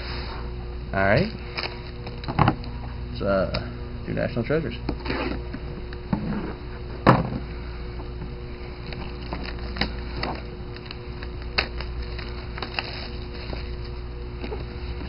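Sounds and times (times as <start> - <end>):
low electrical hum: 0.0 - 15.0
card box and packaging handled: 8.9 - 15.0.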